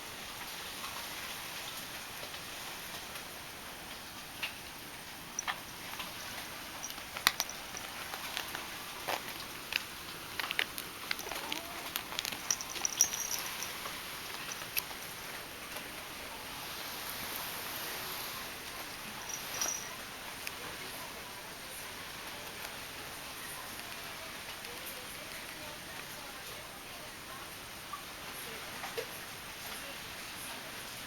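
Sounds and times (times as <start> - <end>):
heavy rain hissing: 0.0 - 25.5
light clicks and taps: 5.4 - 15.0.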